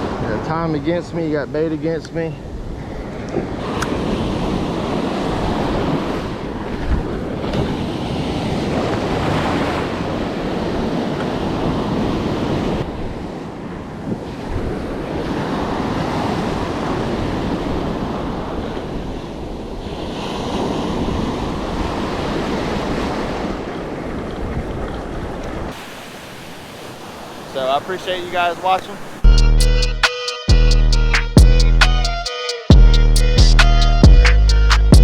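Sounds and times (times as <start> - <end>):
wind buffeting microphone: 0.0 - 25.8
surf washing in: 0.0 - 29.3.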